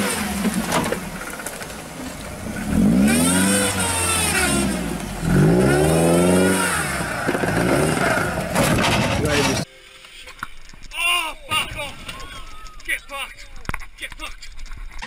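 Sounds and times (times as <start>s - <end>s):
off-road engine revving hard: 0.0s - 9.6s.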